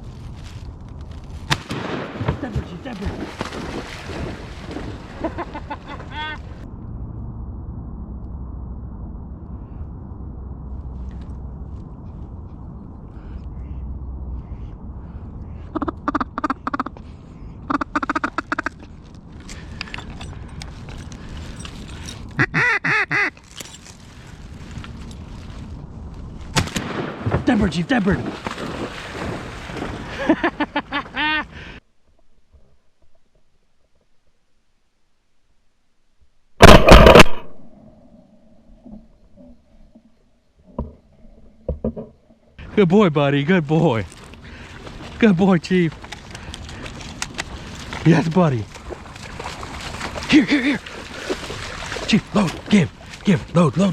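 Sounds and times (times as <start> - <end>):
steady low rumble: 0.0 - 22.6, 23.6 - 31.8, 36.6 - 53.9
duck quacking: 13.6 - 13.9, 15.5 - 17.0, 17.6 - 18.8, 22.4 - 23.3.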